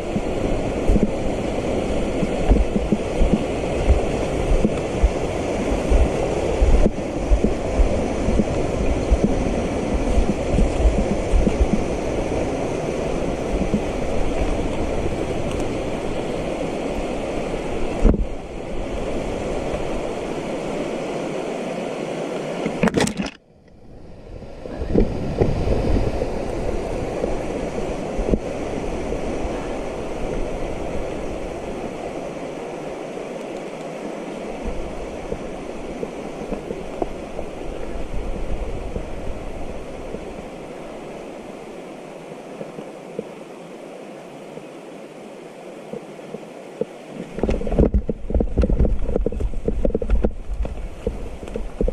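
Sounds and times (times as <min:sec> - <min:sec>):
bike tyres rolling on trail: 0:00.0 - 0:21.1, 0:47.3 - 0:51.9
wind buffeting microphone: 0:00.0 - 0:21.4, 0:23.7 - 0:33.3, 0:34.0 - 0:41.8, 0:47.1 - 0:51.9.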